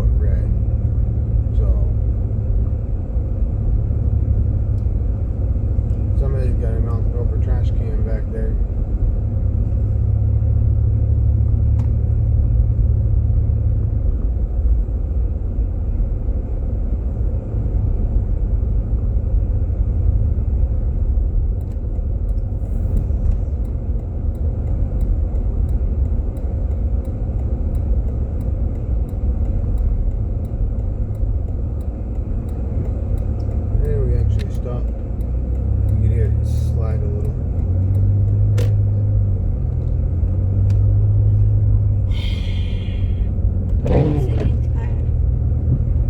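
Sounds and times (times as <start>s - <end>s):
tyre and road noise in car cabin: 0.0s - 46.0s
faint even ticking: 21.6s - 45.2s.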